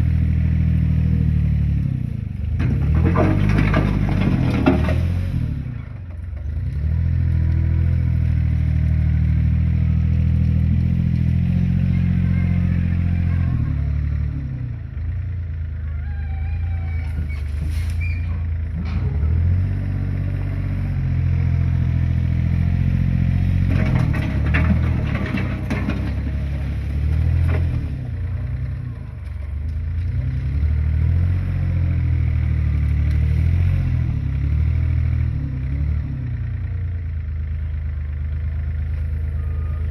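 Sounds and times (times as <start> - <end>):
metallic clanks and knocks: 2.6 - 5.1, 23.7 - 27.9
heavy diesel engine revving: 16.8 - 36.6.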